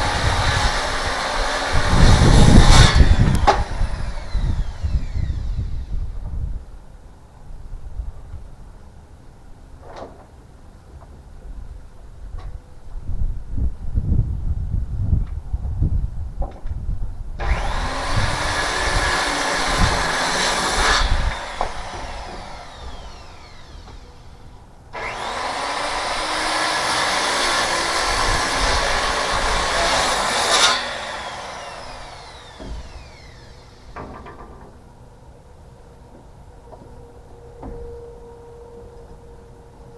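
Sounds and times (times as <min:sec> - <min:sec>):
electric saw cutting wood: 0:00.0 - 0:06.2, 0:17.4 - 0:34.3
saw motor winding down: 0:00.0 - 0:06.2, 0:17.4 - 0:34.0.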